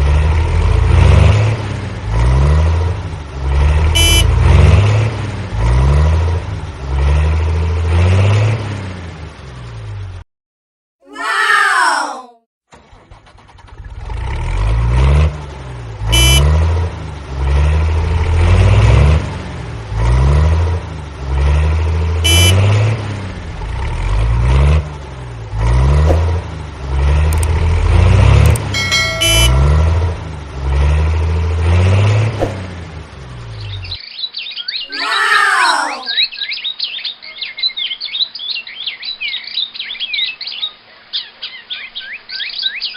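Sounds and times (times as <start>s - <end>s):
short beeps: 4.0s - 4.3s, 16.2s - 16.5s, 22.3s - 22.6s, 28.7s - 29.8s.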